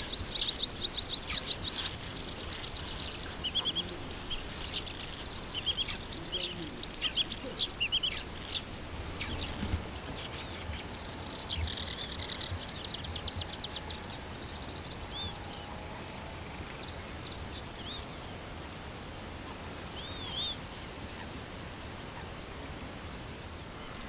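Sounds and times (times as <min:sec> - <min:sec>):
songbirds singing: 0:00.0 - 0:18.4.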